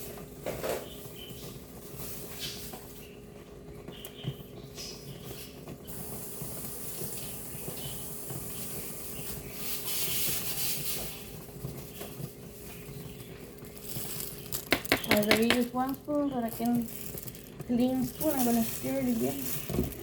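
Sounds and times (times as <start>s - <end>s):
tap water running: 5.8s - 11.2s, 13.4s - 20.0s.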